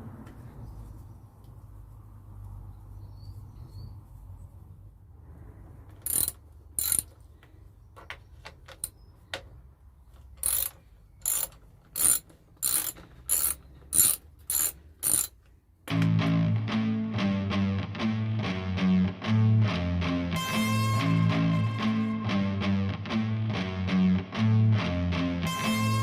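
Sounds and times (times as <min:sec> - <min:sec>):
ratchet wrench clicking: 0:06.0 - 0:07.2, 0:10.4 - 0:15.5.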